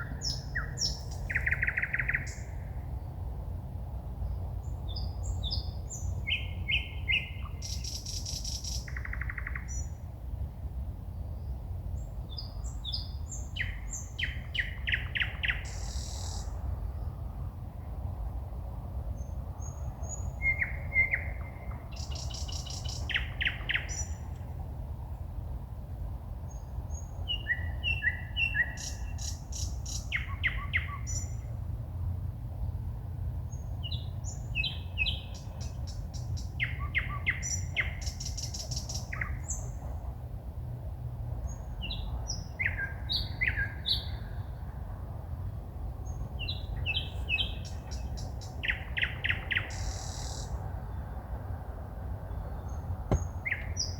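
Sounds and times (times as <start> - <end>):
songbird singing: 0.0 - 3.2, 4.2 - 10.1, 11.1 - 17.2, 19.2 - 24.4, 26.4 - 31.5, 33.5 - 39.9, 41.4 - 44.6, 46.0 - 51.5, 52.2 - 53.9.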